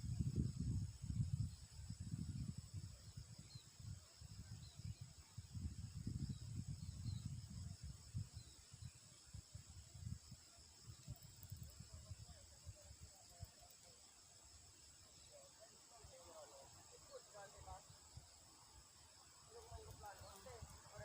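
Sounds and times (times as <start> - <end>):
wind rumble on microphone: 0.0 - 13.6, 19.5 - 21.0
insect drone: 0.0 - 21.0.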